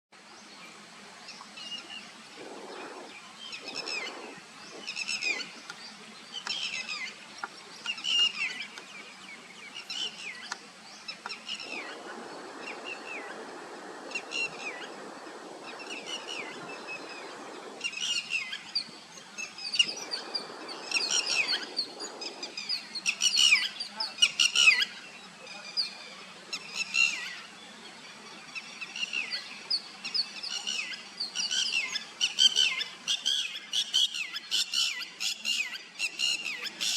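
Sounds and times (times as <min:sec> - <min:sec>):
low rushing noise: 0:10.6 - 0:23.0.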